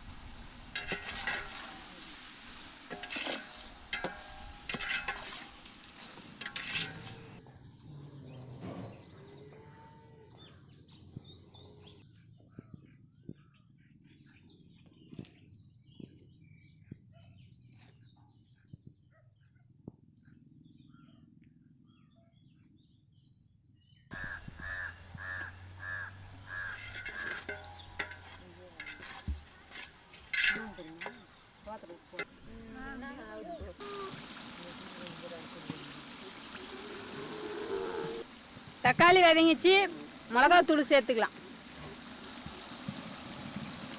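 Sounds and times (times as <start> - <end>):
small birds chirping: 0.0 - 18.8, 24.1 - 43.9
rhythmic pulsing bird call: 24.1 - 34.4.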